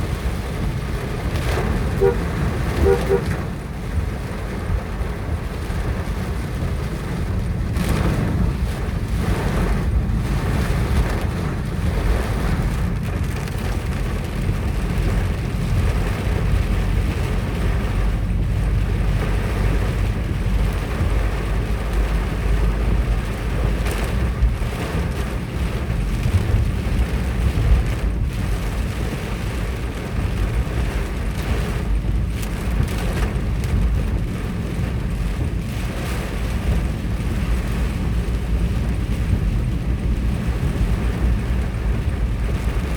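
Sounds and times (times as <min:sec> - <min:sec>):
hiss of rain and hail: 0:00.0 - 0:42.9.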